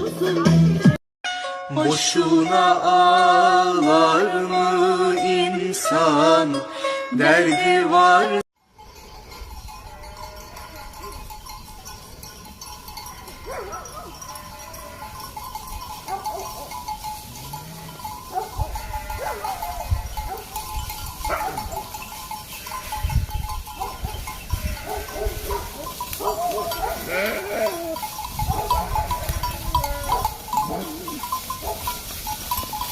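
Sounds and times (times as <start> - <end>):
livestock bleating: 9.9 - 11.1, 13.0 - 15.3, 16.2 - 19.8, 22.5 - 23.1, 24.5 - 28.1, 28.7 - 31.4.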